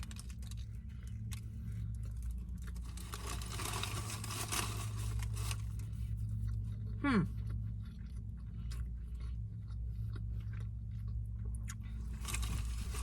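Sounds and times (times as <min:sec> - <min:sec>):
steady low hum: 0:00.0 - 0:13.0
paper wrapper crinkling: 0:02.5 - 0:06.0, 0:12.1 - 0:13.0.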